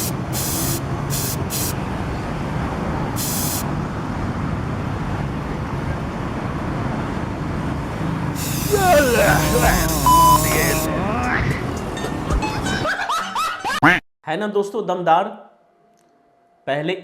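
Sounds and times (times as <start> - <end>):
aerosol can spraying: 0.0 - 1.8, 3.2 - 3.6, 8.4 - 10.9.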